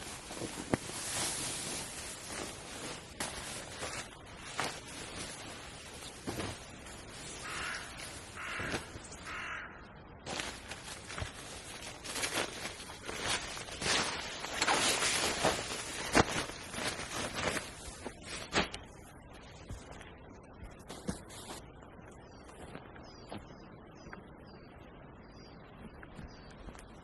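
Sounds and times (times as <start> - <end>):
rustling: 0.0 - 9.4, 10.2 - 22.8
crow cawing: 7.4 - 9.9.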